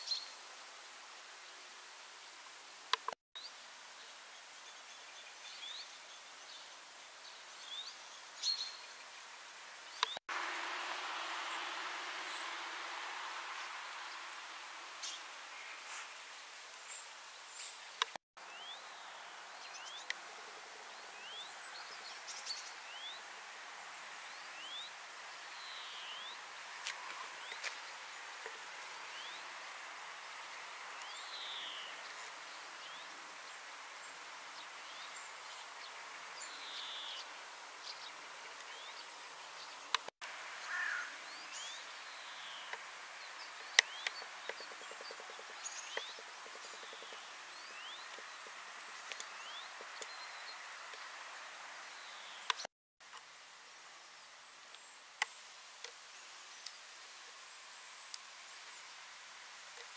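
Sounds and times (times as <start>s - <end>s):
steady outdoor hiss: 0.0s - 59.9s
birds chirping: 9.8s - 23.4s, 24.0s - 52.7s.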